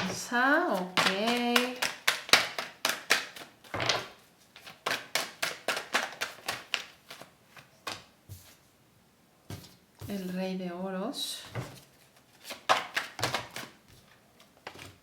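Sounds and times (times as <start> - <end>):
cards being shuffled: 0.0 - 8.6, 11.6 - 15.0.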